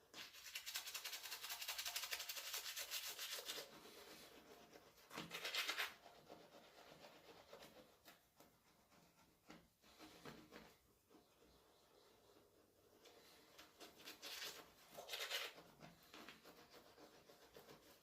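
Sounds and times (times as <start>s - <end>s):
toothbrush scrubbing teeth: 0.2s - 7.8s, 13.9s - 18.0s.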